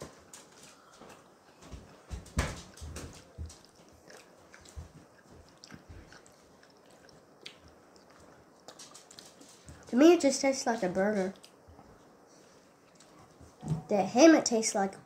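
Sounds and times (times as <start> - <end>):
person chewing food: 2.9 - 9.9, 11.3 - 13.6.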